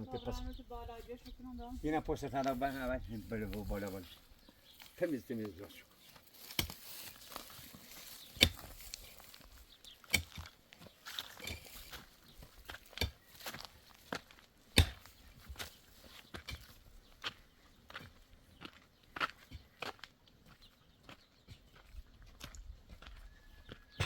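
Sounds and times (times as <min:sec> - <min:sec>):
footsteps: 0:00.9 - 0:16.7.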